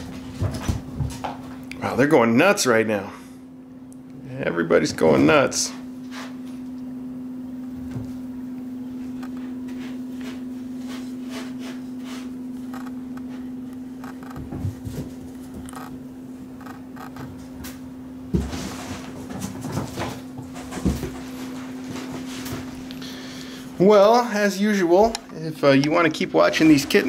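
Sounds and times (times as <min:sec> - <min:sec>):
steady electrical hum: 0:00.0 - 0:27.0
kittens scampering and playing: 0:16.6 - 0:23.7.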